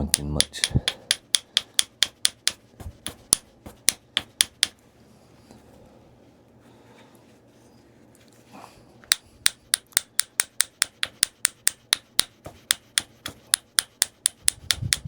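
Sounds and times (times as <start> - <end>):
sharp taps on stone: 0.1 - 4.8, 9.1 - 15.0.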